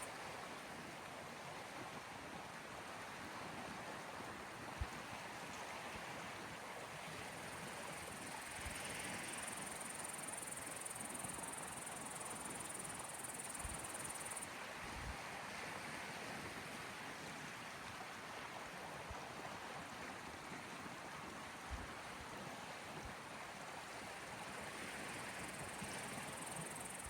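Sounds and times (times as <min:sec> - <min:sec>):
insect trill: 0:07.9 - 0:14.4, 0:25.2 - 0:27.0.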